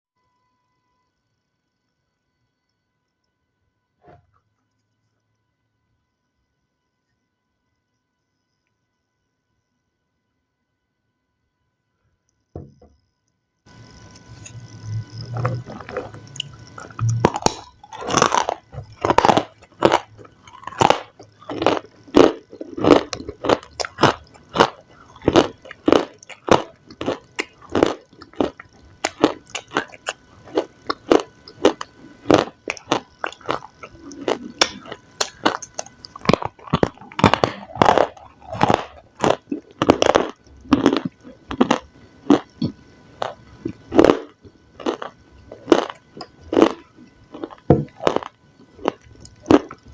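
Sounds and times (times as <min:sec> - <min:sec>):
person crunching food: 0:13.8 - 0:49.9.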